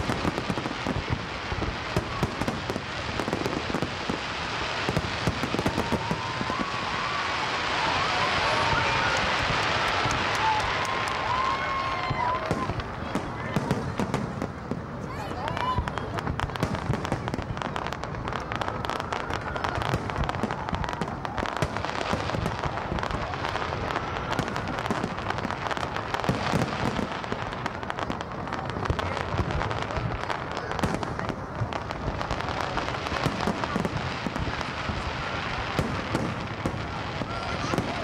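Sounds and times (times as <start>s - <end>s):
fireworks cracking and popping: 0.0s - 38.0s.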